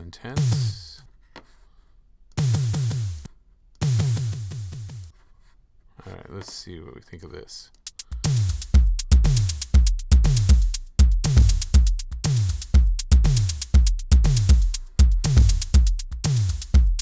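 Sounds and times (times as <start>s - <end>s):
drum machine kick drum: 0.4s - 1.0s, 2.4s - 5.1s, 7.8s - 17.0s
hi-hat ticks: 2.3s - 5.1s, 7.7s - 17.0s.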